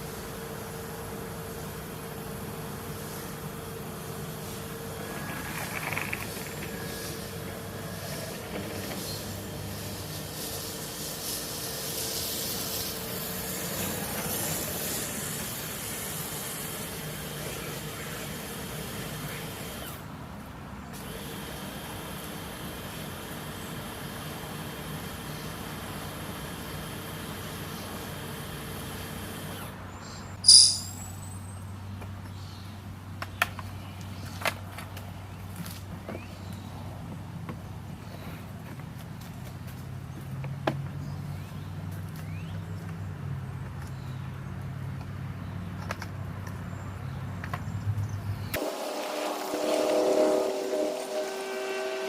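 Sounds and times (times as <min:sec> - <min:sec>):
pressure washer motor running: 0:00.0 - 0:19.8, 0:21.0 - 0:29.7, 0:48.6 - 0:52.0
pressure washer spray hissing: 0:09.0 - 0:19.7, 0:48.6 - 0:52.0.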